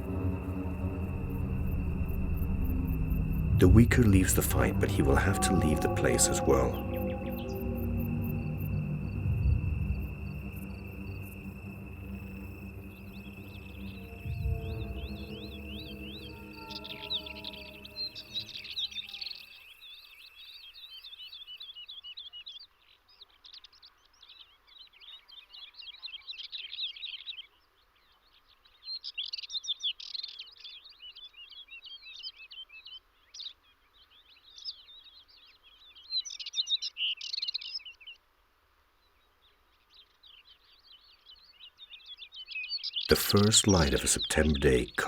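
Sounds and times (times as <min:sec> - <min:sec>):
background music: 0:00.0 - 0:19.0, 0:43.1 - 0:45.0
songbird twittering chirps: 0:00.0 - 0:38.2, 0:39.0 - 0:44.8.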